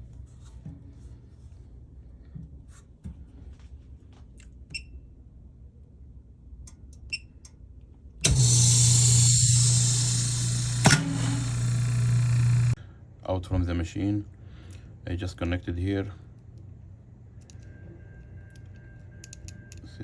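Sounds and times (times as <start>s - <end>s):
machine humming and hissing: 8.2s - 12.8s.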